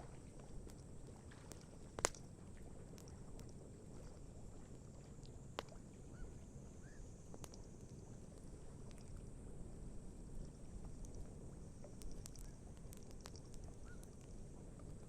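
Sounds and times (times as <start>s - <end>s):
campfire crackling and popping: 0.0s - 4.0s, 5.2s - 5.8s, 7.2s - 9.2s, 10.1s - 15.0s
low outdoor background rush: 0.0s - 15.0s
faint short chirp: 6.1s - 7.1s.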